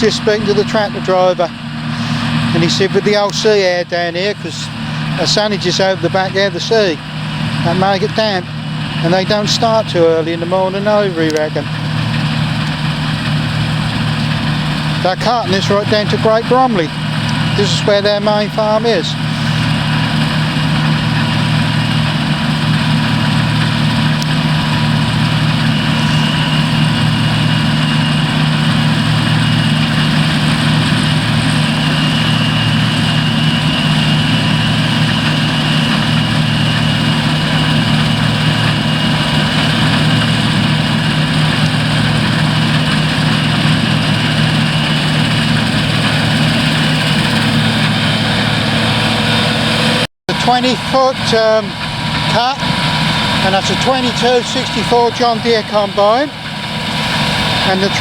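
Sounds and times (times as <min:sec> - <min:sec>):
diesel engines running: 0:00.0 - 0:58.0
high engine whine: 0:00.0 - 0:58.0.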